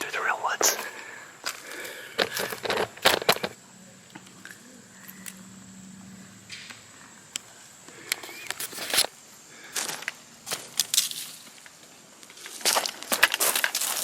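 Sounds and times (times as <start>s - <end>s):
footsteps on dirt trail: 0.6s - 3.6s, 9.7s - 14.0s.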